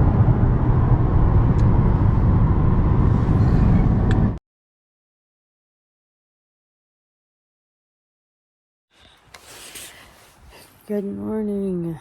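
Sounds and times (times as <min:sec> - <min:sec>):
road and engine rumble: 0:00.0 - 0:04.4.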